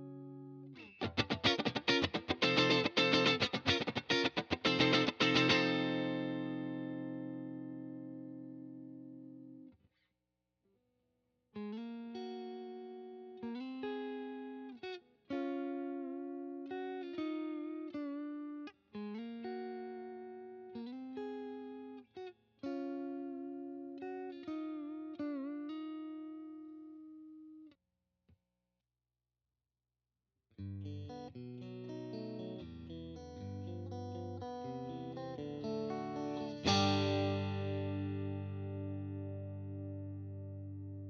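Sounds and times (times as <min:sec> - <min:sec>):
clean electric guitar chords: 0:00.0 - 0:09.6, 0:30.7 - 0:41.0.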